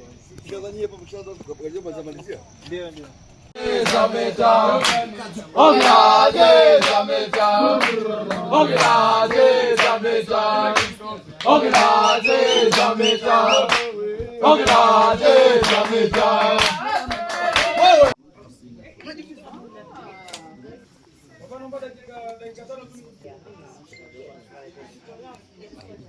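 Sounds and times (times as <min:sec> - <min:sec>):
male voices chanting in song: 0:03.6 - 0:18.2
steady percussive beat: 0:05.8 - 0:17.3.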